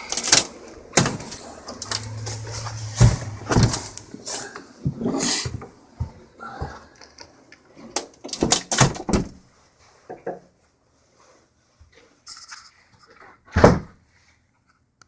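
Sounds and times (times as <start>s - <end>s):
loud heavy thud: 2.0s - 4.2s.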